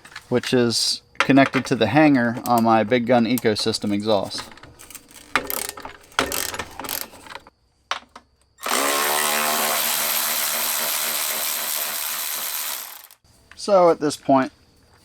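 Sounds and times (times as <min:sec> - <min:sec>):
ratchet clicking: 0:03.3 - 0:07.5, 0:08.6 - 0:13.2
power tool motor running: 0:08.6 - 0:13.2.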